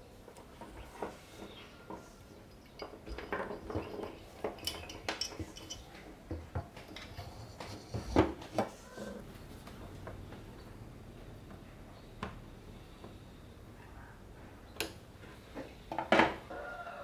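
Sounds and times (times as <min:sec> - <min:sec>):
small metal parts clinking: 0:01.0 - 0:06.3.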